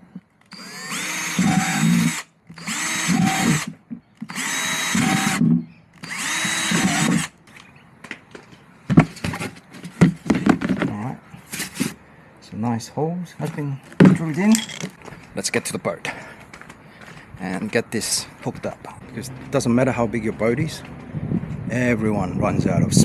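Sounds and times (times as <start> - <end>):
power drill whining: 0.4 - 7.4
handling knocks and clicks: 13.4 - 15.4.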